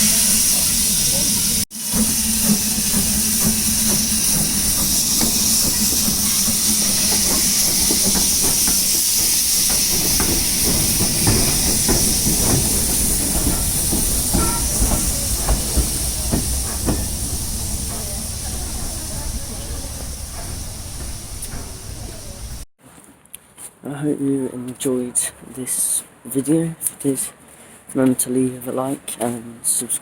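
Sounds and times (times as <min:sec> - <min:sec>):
steam locomotive hissing: 0:00.0 - 0:22.7
train clanks and knocks: 0:00.0 - 0:22.7.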